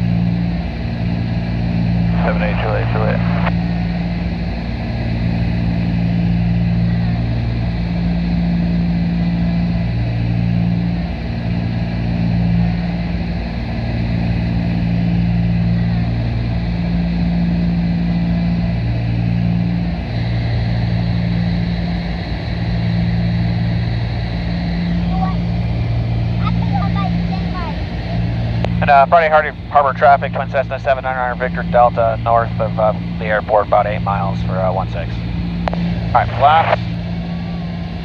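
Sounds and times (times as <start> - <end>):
twin propeller engines droning: 0.0 - 38.0.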